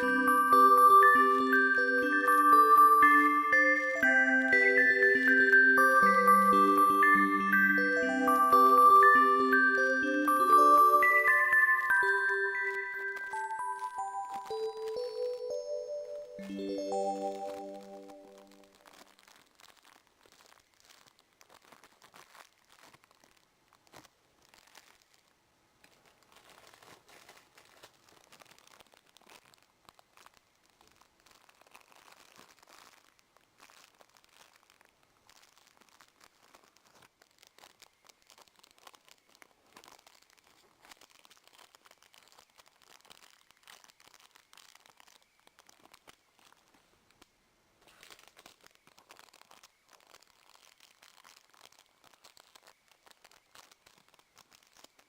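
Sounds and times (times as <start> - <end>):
plastic packaging crinkling: 10.4 - 55.0
plastic tearing: 17.4 - 55.0.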